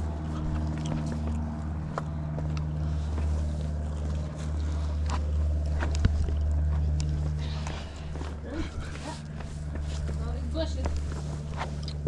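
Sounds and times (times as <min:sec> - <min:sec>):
steady low hum: 0:00.0 - 0:12.0
footsteps on rock: 0:00.4 - 0:12.0.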